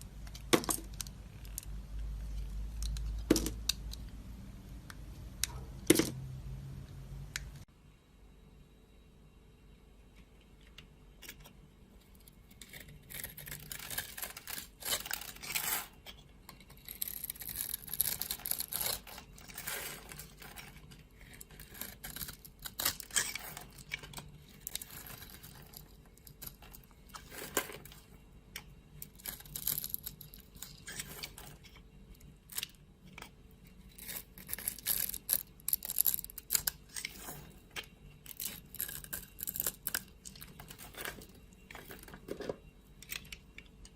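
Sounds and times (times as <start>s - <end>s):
knife scraping soap: 12.2s - 27.9s, 33.9s - 42.1s.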